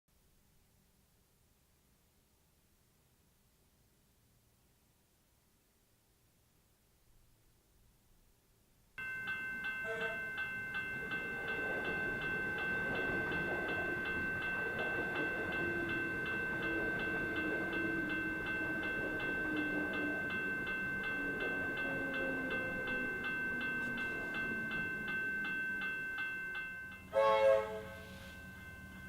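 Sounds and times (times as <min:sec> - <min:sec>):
level crossing warning bell: 0:09.0 - 0:29.0
passing train rumble: 0:09.4 - 0:29.0.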